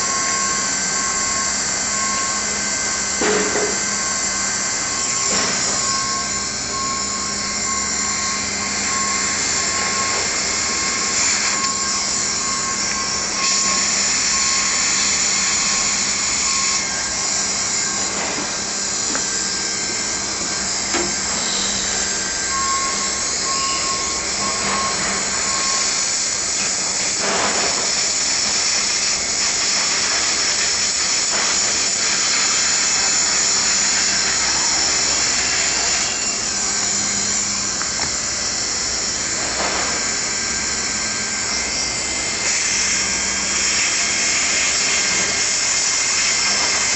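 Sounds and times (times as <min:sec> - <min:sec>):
hot-air welder hissing: 0:09.4 - 0:22.6, 0:25.2 - 0:46.9.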